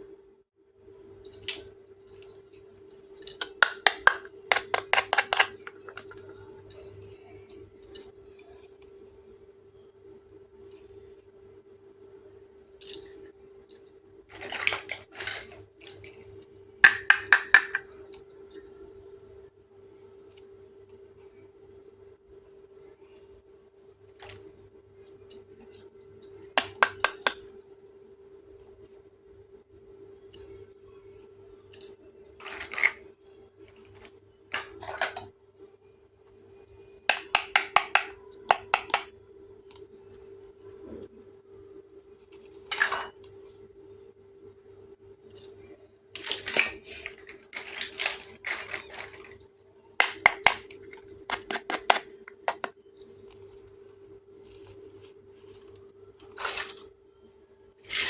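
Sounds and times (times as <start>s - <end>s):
faint steady hum: 0.0s - 58.0s
small dishes clinking: 3.2s - 6.8s, 32.3s - 33.0s, 46.2s - 49.4s, 50.0s - 52.8s.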